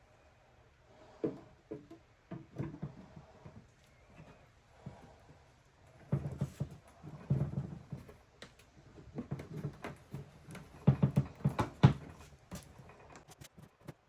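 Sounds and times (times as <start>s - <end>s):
knocks and clicks of plastic parts: 1.2s - 3.6s, 6.0s - 12.8s.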